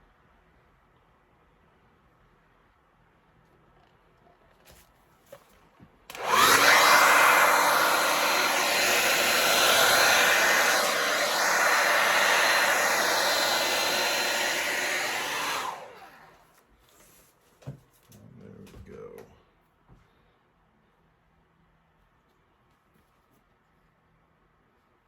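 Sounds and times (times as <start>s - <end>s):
hair dryer blowing: 6.1s - 16.5s.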